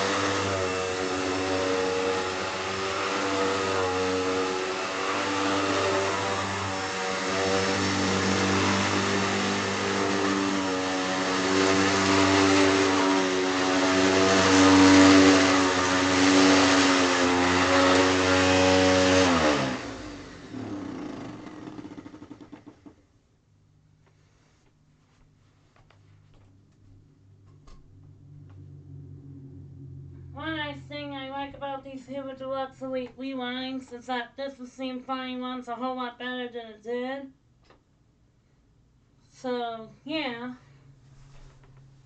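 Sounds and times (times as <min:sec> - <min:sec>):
vacuum cleaner motor running: 0:00.0 - 0:23.0
fast ticking of coasting motor: 0:20.5 - 0:22.8.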